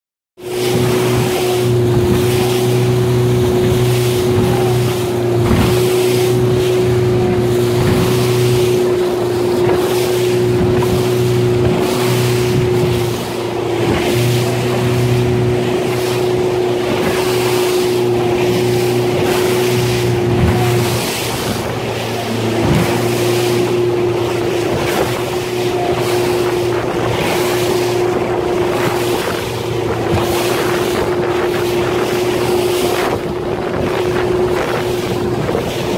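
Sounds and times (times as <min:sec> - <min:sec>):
humming drone: 0:00.4 - 0:35.9
rushing water: 0:00.4 - 0:35.9
wind: 0:00.4 - 0:35.9.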